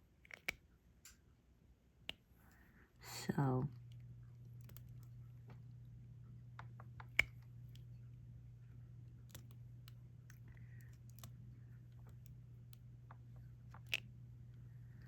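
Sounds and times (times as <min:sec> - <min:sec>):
steady low hum: 0:00.0 - 0:15.0
small clicks and taps: 0:00.2 - 0:01.2, 0:03.8 - 0:05.8, 0:06.5 - 0:08.0, 0:09.1 - 0:14.2.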